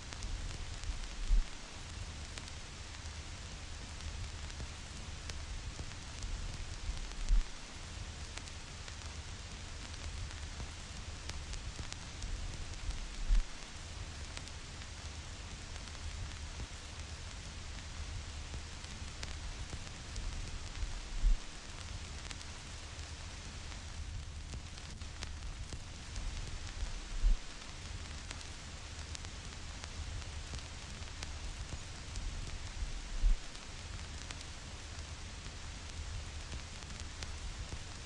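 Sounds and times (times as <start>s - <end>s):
vinyl record hiss and crackles: 0.0s - 38.0s
low rumble: 20.6s - 21.6s, 32.4s - 33.5s.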